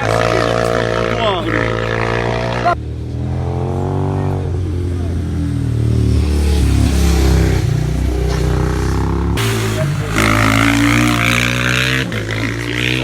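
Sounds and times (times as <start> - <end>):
racing motorcycle engine revving: 0.0 - 13.0.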